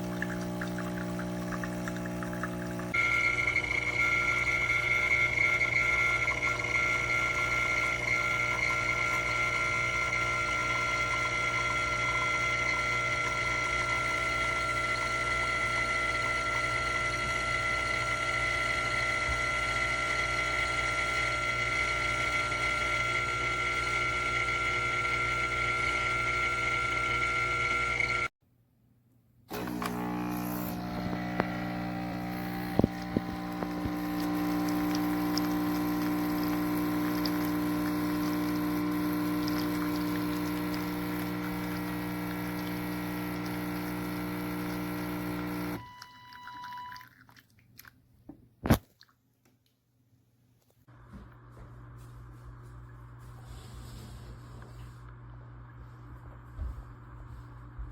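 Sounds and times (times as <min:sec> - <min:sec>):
espresso pump humming whine: 0:00.0 - 0:28.3, 0:29.5 - 0:46.8.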